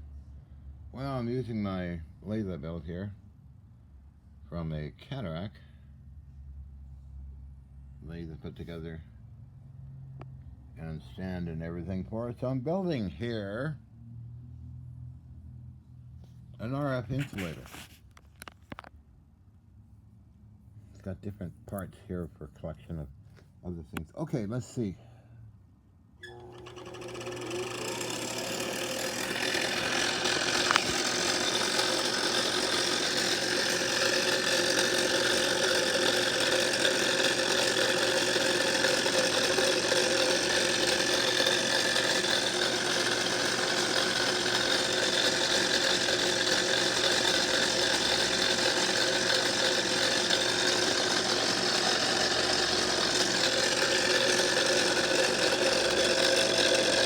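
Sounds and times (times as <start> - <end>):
lathe motor humming and whining: 26.2 - 57.0.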